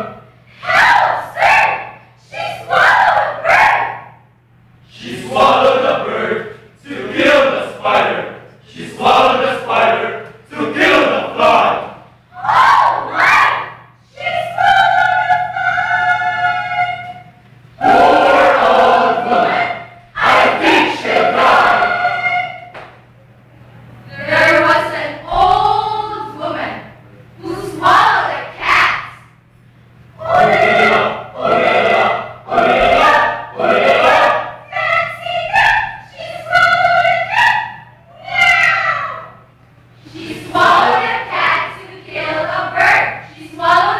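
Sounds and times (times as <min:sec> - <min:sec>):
vocal ensemble singing: 0:00.0 - 0:04.2, 0:04.8 - 0:23.0, 0:24.1 - 0:29.4, 0:30.1 - 0:43.9
group chanting in unison: 0:04.9 - 0:17.2, 0:17.8 - 0:22.8, 0:30.2 - 0:39.3, 0:40.0 - 0:43.9.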